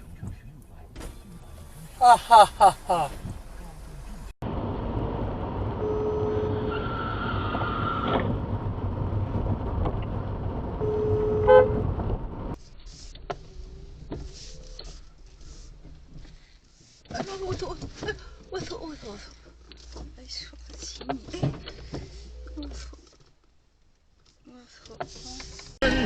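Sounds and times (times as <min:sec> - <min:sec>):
car road and engine noise: 0:00.0 - 0:26.0
car horn toots: 0:10.8 - 0:11.9.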